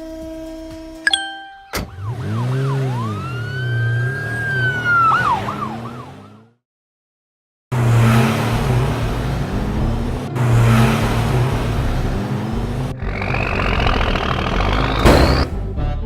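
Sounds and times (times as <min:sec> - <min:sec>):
loud engine rumble: 0:07.8 - 0:16.0.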